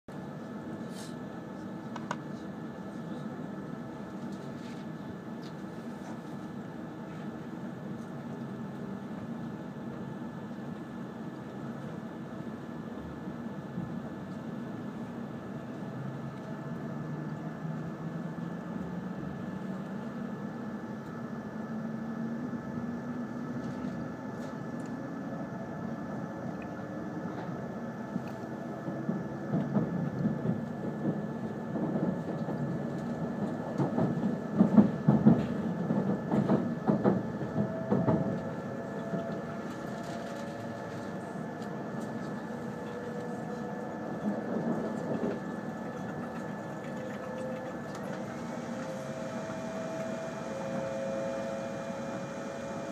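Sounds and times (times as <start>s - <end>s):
train running rumble: 0.1s - 52.9s
train motor whine: 23.8s - 52.9s.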